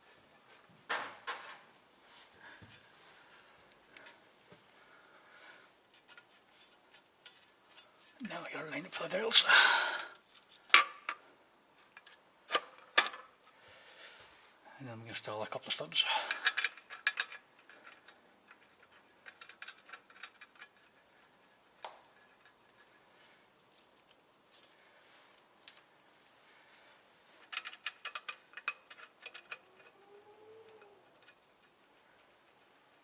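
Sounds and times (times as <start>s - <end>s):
metallic clicks of bolts and tools: 16.3s - 21.0s, 27.4s - 30.0s.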